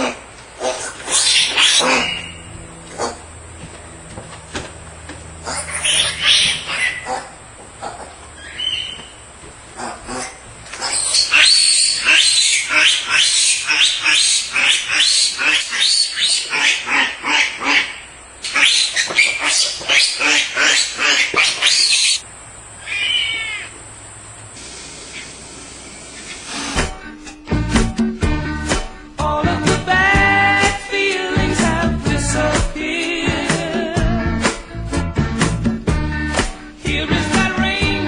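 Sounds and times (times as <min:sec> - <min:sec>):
piglet squealing: 0:00.0 - 0:03.2, 0:05.4 - 0:09.2, 0:09.8 - 0:22.2, 0:22.8 - 0:23.8.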